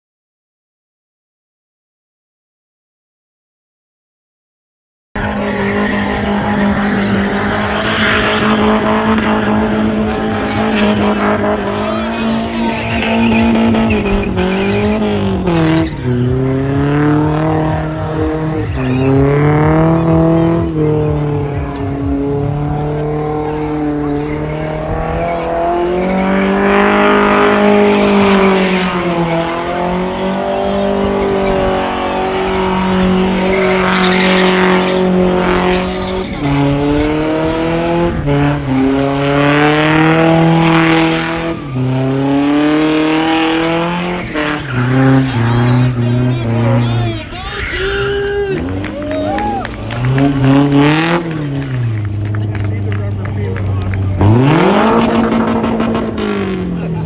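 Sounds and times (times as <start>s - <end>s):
car engine revving: 5.2s - 57.0s
tyres squealing: 26.0s - 48.8s.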